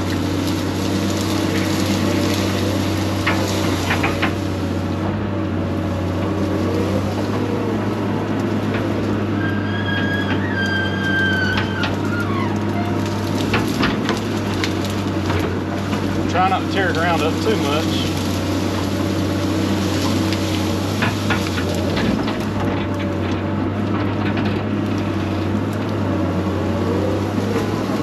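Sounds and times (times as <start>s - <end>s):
machine engine running: 0.0s - 28.0s
high squeal: 9.3s - 13.0s.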